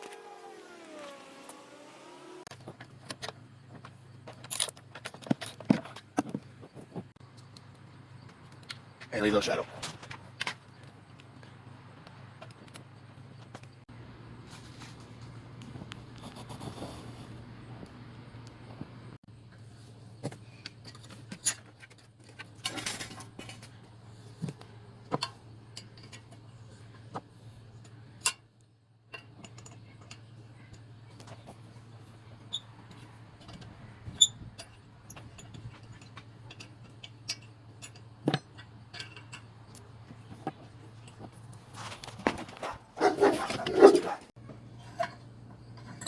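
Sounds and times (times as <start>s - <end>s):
metal tools clinking and knocking: 4.2s - 6.4s, 29.1s - 31.6s, 32.5s - 41.3s, 44.8s - 46.0s.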